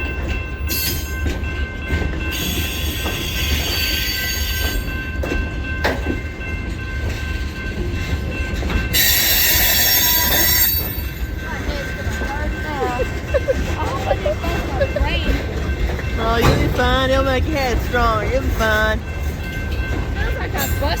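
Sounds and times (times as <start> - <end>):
train wheel squeal: 0.0 - 16.6
freight train rumbling: 0.0 - 21.0.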